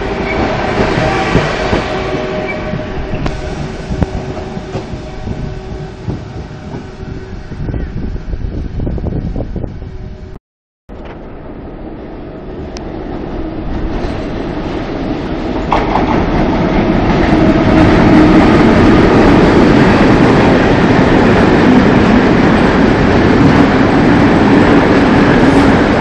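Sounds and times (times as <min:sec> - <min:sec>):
freight train wheels clattering: 0:15.4 - 0:26.0.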